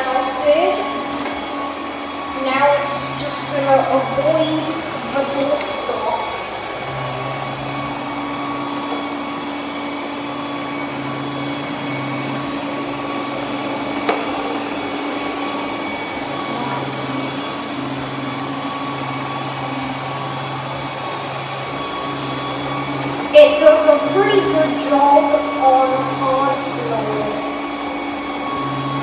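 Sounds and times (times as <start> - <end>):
robot vacuum suction whir: 0.0 - 29.0.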